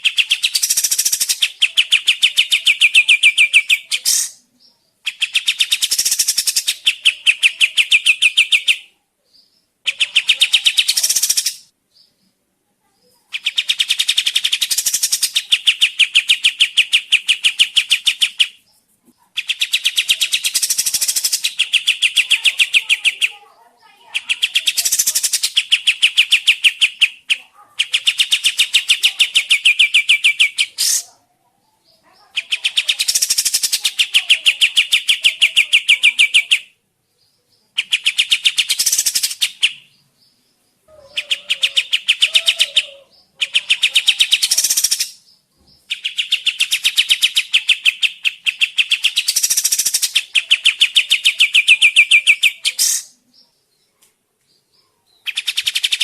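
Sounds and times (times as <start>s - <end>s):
bird trilling rapidly: 0.0s - 4.4s, 5.1s - 8.8s, 9.9s - 11.7s, 13.3s - 18.6s, 19.4s - 23.3s, 24.1s - 31.2s, 32.4s - 36.7s, 37.8s - 39.9s, 40.9s - 45.2s, 45.8s - 53.2s.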